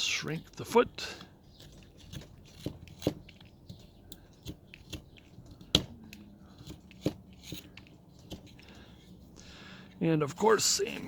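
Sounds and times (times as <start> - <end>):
knife cutting into wood: 1.2 - 8.7.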